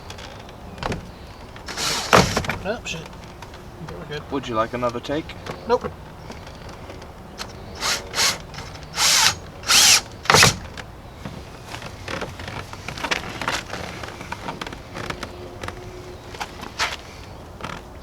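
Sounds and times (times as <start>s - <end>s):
cordless screw gun bursts: 1.7s - 2.4s, 7.4s - 10.7s.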